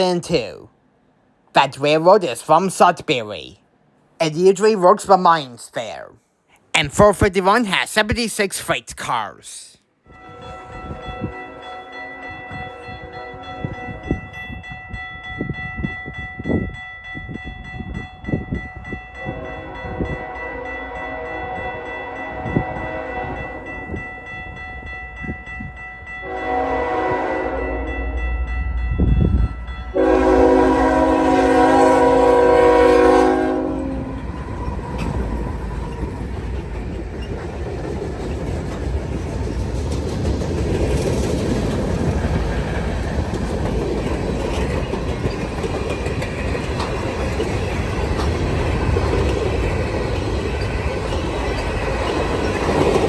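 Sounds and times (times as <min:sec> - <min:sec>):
train air horn blasts: 0:10.1 - 0:14.2, 0:19.2 - 0:23.7, 0:26.2 - 0:28.2, 0:29.9 - 0:34.2
train wheels clacking on rails: 0:33.9 - 0:53.0.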